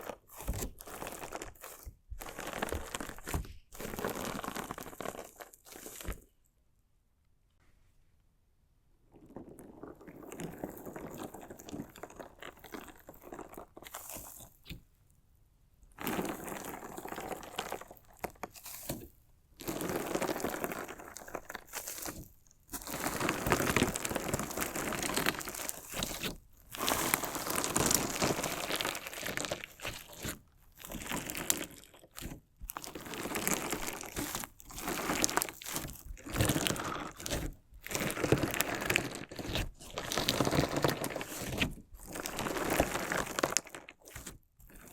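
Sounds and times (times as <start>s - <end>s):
crunchy slime crackling: 0.0s - 6.4s, 16.0s - 19.0s, 19.6s - 44.9s.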